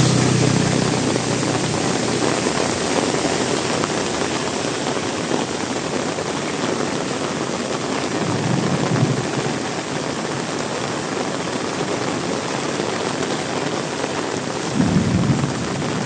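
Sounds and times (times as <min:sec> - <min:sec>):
low rumble: 0:00.0 - 0:04.5
gusting wind: 0:00.0 - 0:10.4
heavy rain falling: 0:00.0 - 0:16.0.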